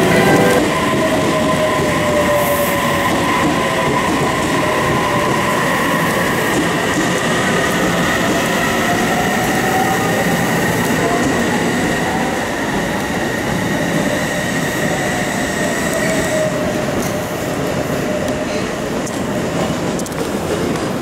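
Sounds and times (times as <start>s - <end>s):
steady high whine: 0.0s - 1.0s
train wheels on rail: 0.0s - 21.0s.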